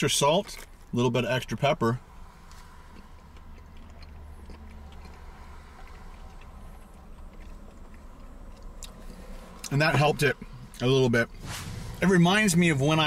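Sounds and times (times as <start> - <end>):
low hum inside a car: 0.0 - 13.0
man chewing: 2.4 - 11.8.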